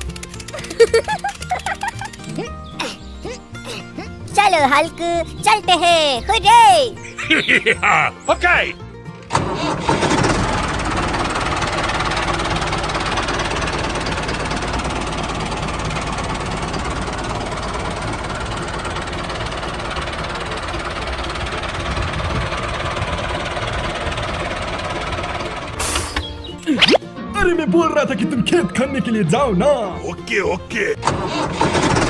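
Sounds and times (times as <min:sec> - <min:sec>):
small tractor engine knocking: 0:00.0 - 0:02.4, 0:09.3 - 0:26.4, 0:31.0 - 0:32.0.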